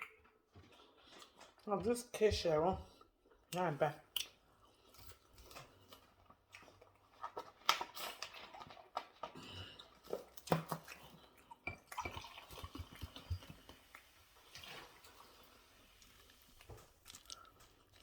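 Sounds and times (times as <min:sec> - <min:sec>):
chewing crunches: 0:00.0 - 0:01.7, 0:03.2 - 0:11.6, 0:16.0 - 0:18.0
wet mouth smacks and clicks: 0:03.5 - 0:04.4.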